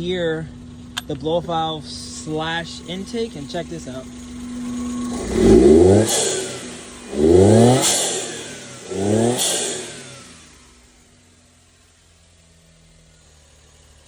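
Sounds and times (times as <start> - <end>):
truck engine revving: 0.0 - 14.0
faint turbo whistle: 2.2 - 7.2.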